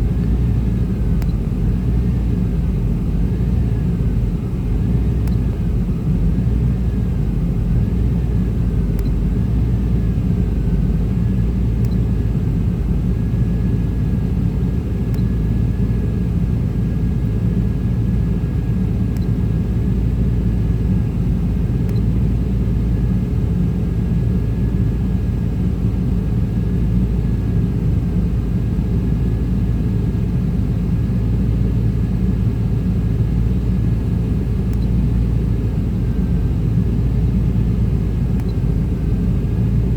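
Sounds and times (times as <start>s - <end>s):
faint high whine: 0.0s - 14.0s.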